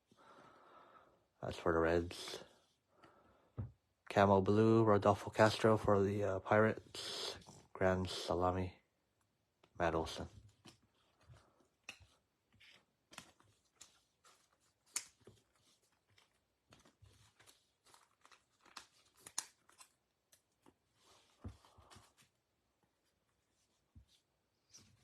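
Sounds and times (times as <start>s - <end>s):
card packaging crinkling and rustling: 10.5s - 22.4s.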